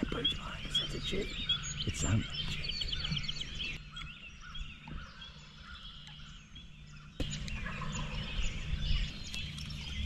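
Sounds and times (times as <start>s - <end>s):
songbird chirps: 0.0s - 10.0s
distant turkeys gobbling: 7.1s - 8.6s.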